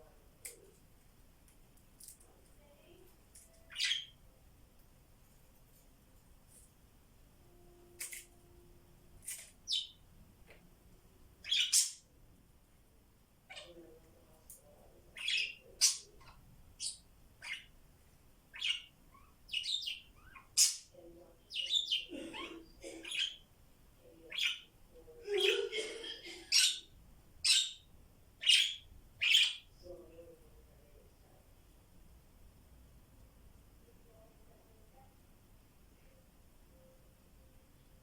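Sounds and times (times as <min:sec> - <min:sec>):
parrots chirping and squawking: 0:03.7 - 0:04.1, 0:11.4 - 0:12.0, 0:13.5 - 0:13.8, 0:15.2 - 0:17.7, 0:18.5 - 0:20.9, 0:21.5 - 0:23.5, 0:25.3 - 0:27.8, 0:28.4 - 0:29.7.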